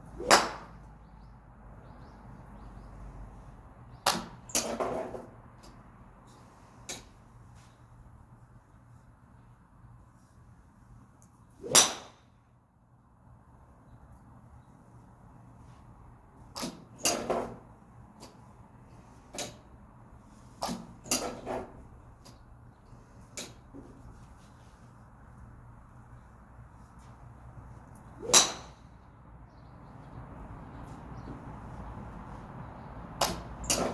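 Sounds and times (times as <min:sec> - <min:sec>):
golf club striking ball: 0:00.2 - 0:00.7, 0:11.6 - 0:12.2, 0:28.2 - 0:28.9, 0:33.2 - 0:33.9.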